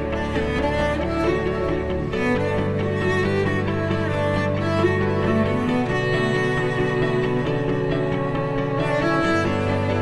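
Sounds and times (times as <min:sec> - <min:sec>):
bowed strings music: 0:00.0 - 0:10.0.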